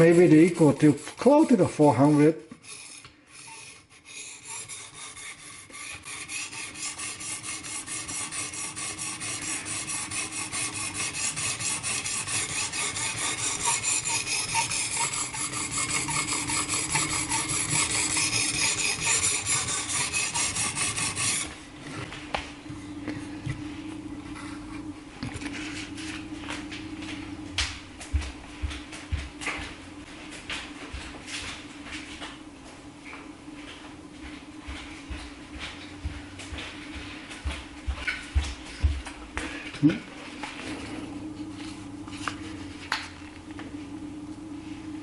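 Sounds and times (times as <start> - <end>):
knife rasping on sharpening plate: 0.0 - 21.5.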